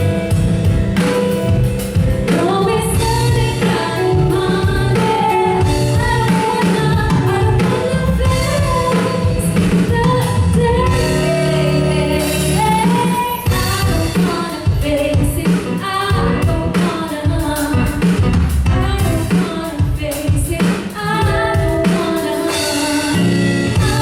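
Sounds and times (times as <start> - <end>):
drum and cymbal hits: 0.0 - 24.0
live band playing: 0.0 - 24.0
person singing: 18.8 - 24.0.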